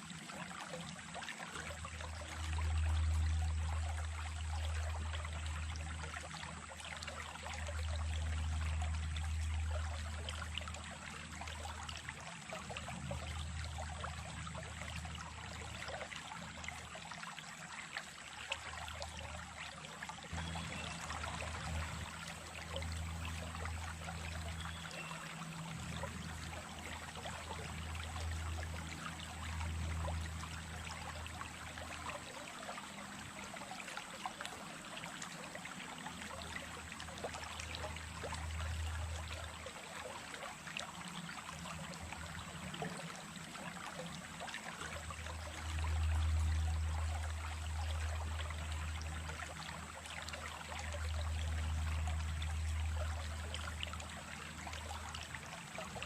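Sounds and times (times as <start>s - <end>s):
running water splashing: 17.4s - 56.0s.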